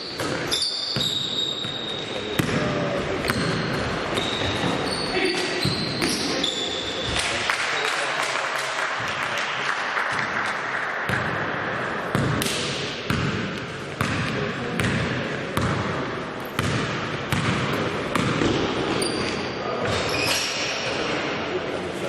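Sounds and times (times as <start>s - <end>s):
voices in a hall: 0.0s - 22.0s
basketball dribbling on court: 13.1s - 18.6s.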